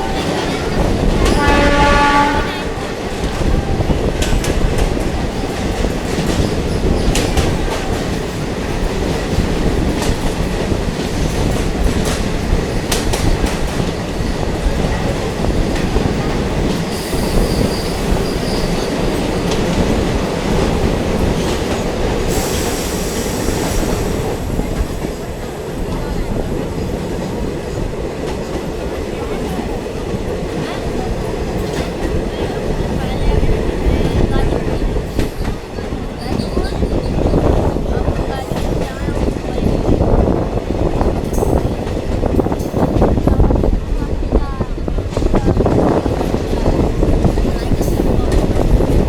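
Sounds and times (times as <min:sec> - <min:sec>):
train rumbling on rails: 0:00.0 - 0:49.0.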